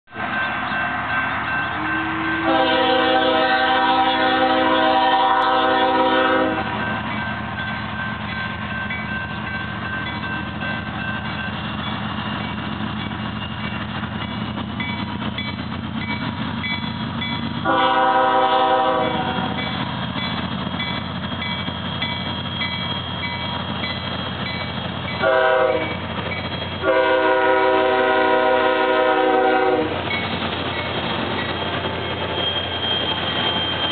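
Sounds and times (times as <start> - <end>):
train rumbling: 0.1 - 33.9
locomotive horn blasts: 1.8 - 6.8, 17.6 - 19.7, 25.2 - 26.0, 26.8 - 30.0.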